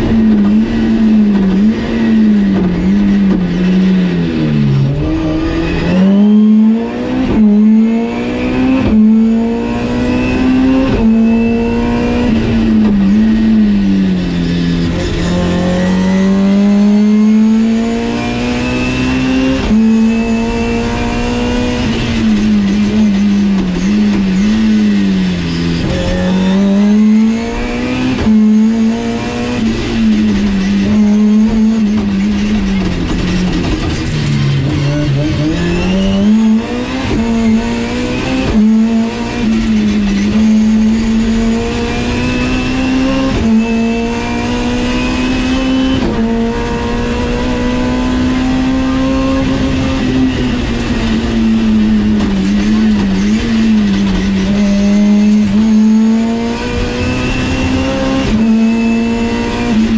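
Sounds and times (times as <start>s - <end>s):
car engine revving through gears: 0.0s - 59.9s
road noise: 0.0s - 59.9s.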